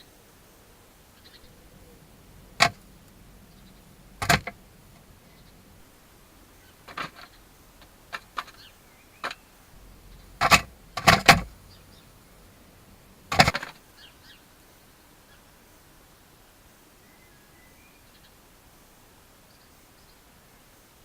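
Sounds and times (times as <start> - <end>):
faint high bird chirps: 1.2 - 4.2, 8.5 - 10.9, 11.5 - 12.5, 17.0 - 18.4.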